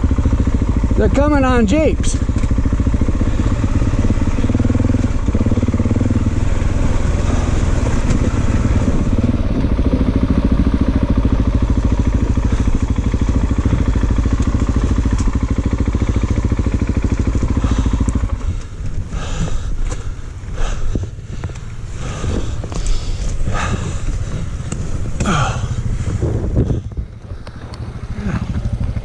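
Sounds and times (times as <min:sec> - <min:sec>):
dirt bike engine running: 0:00.0 - 0:29.0.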